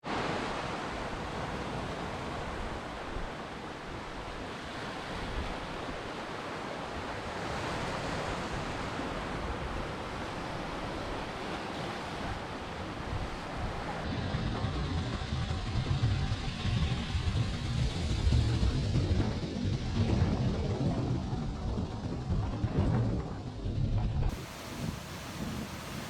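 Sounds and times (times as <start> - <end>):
ocean waves washing in: 0.0 - 26.0.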